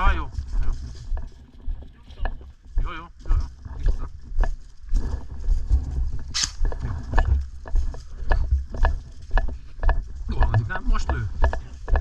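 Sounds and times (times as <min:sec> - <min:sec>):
footsteps on rough ground: 0:00.0 - 0:12.0
sharp clicks: 0:06.3 - 0:06.8
short hiss: 0:06.4 - 0:06.6.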